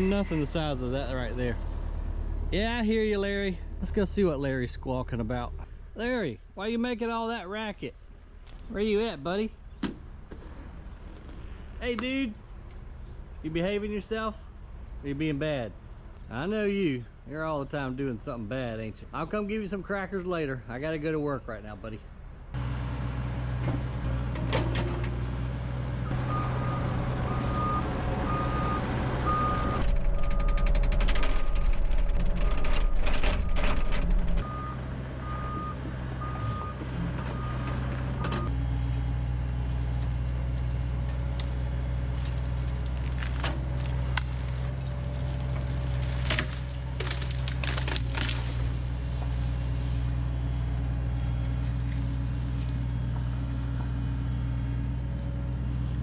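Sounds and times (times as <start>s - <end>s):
diesel engine running: 0.0s - 6.7s, 22.1s - 56.0s
backup alarm beeping: 26.1s - 30.7s, 34.4s - 38.5s.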